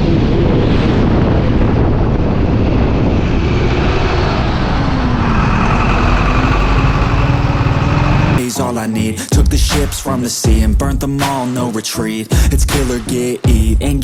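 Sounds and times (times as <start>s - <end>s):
wind rumble on microphone: 0.0s - 8.4s
motorcycle engine running: 5.2s - 8.4s.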